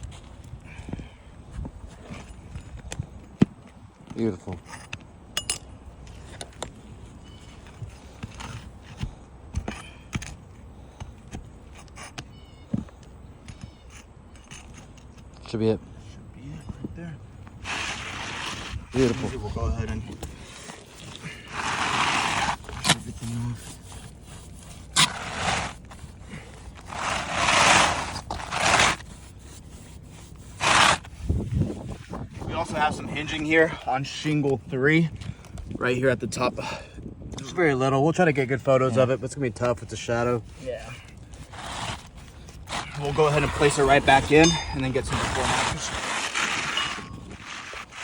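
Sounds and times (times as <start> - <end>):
wind rumble on microphone: 0.0 - 4.1, 18.3 - 20.6, 31.0 - 37.7, 41.3 - 48.0
roofing tool clicking and scraping: 2.0 - 15.6, 17.4 - 34.6
roof shingles scraping: 17.5 - 33.1, 39.6 - 48.0.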